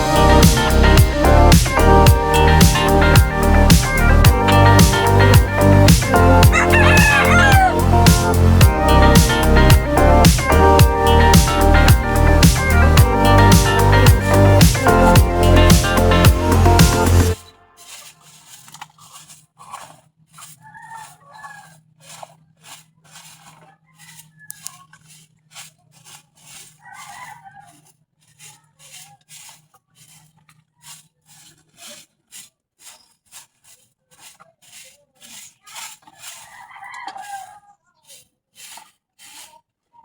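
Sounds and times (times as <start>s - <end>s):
broom sweeping ground: 0.0s - 19.3s, 25.0s - 27.4s, 28.3s - 36.6s, 37.2s - 39.6s
chickens calling: 2.7s - 10.0s
rooster crowing: 6.5s - 8.0s, 26.8s - 27.7s.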